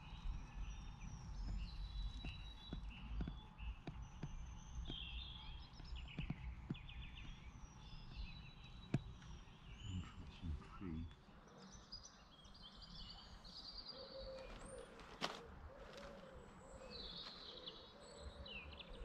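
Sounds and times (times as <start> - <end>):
bird trill: 0.0 - 19.0
birds chirping and whistling: 0.0 - 19.0
soft knocks: 5.8 - 7.5.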